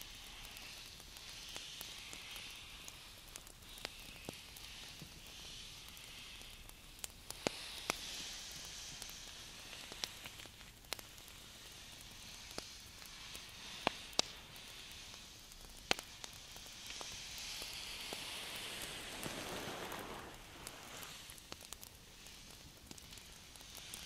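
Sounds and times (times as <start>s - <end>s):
skin rubbing rustle: 17.4s - 21.4s.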